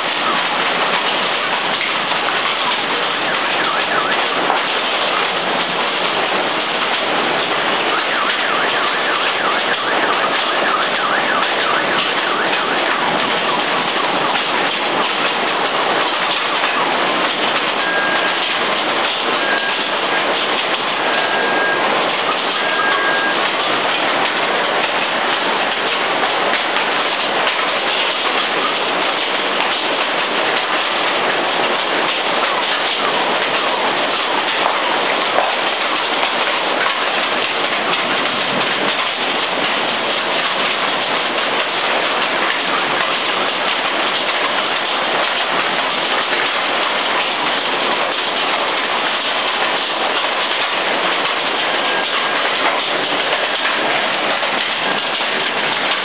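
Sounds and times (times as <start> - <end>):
torrential rain and wind: 0.0 - 56.0
short high beeps: 17.8 - 18.4, 19.3 - 20.2, 21.0 - 21.9, 22.6 - 23.5.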